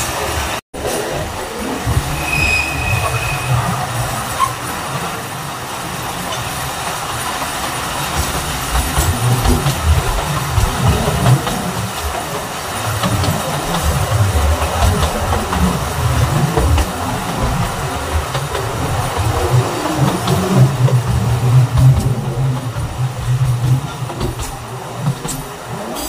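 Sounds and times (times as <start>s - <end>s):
train wheels clattering on rails: 0.0s - 26.0s
high wheel squeal: 1.8s - 4.9s.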